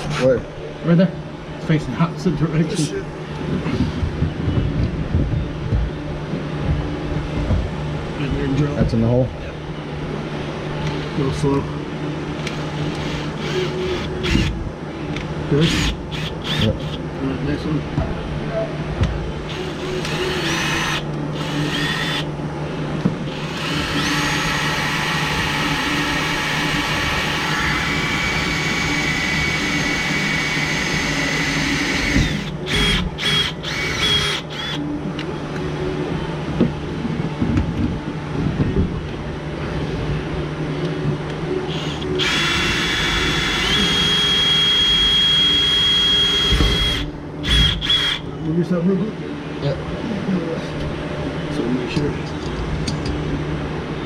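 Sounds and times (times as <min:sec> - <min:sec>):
electric drill boring: 0:12.5 - 0:14.6, 0:15.6 - 0:17.0, 0:19.5 - 0:22.3, 0:23.3 - 0:34.8, 0:41.7 - 0:48.3.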